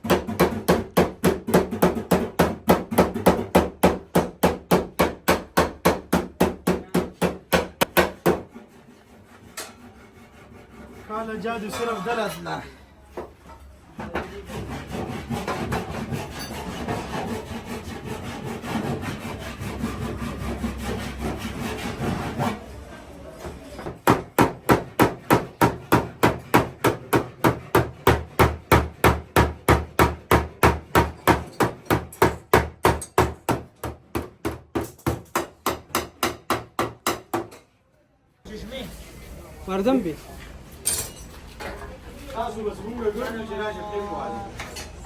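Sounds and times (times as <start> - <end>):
hammer blows on car body panel: 0.0 - 8.5, 23.9 - 37.5
rough rasping: 8.4 - 11.6, 14.1 - 22.6.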